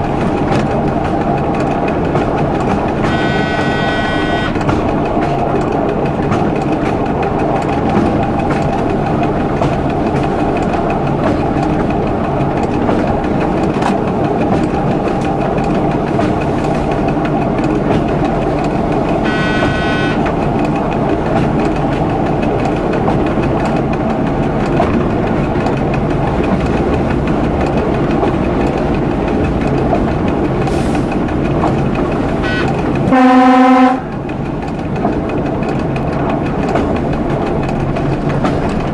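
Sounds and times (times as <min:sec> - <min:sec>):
train running along track: 0:00.0 - 0:38.9
train horn blast: 0:03.0 - 0:04.7, 0:19.2 - 0:20.2, 0:32.4 - 0:34.1.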